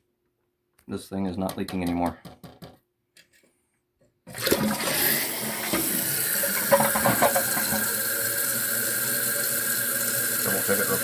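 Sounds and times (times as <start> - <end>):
toilet water rushing: 4.3 - 11.0.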